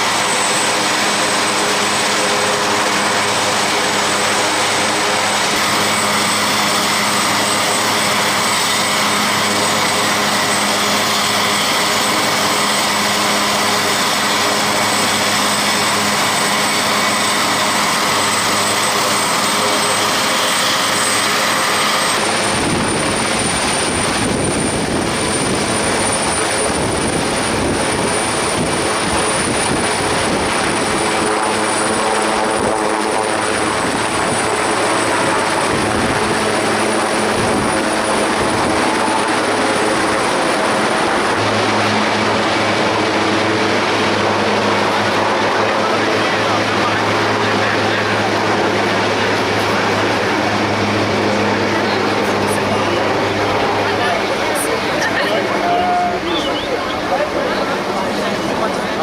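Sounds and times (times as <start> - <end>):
helicopter rotors beating: 0.0 - 59.0
turbine engines whining: 0.0 - 59.0.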